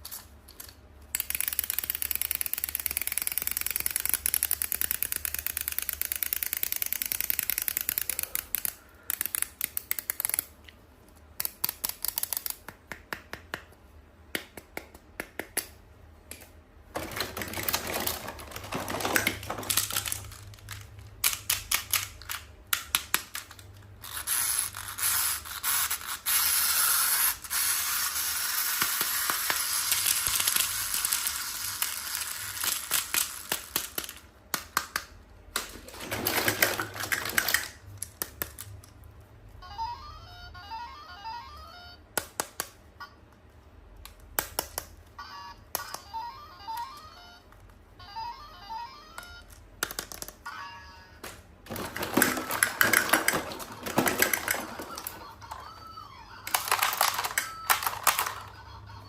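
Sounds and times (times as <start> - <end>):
plastic clicking and crackling: 16.3 - 23.9, 28.6 - 39.0, 51.2 - 55.7, 56.4 - 58.9.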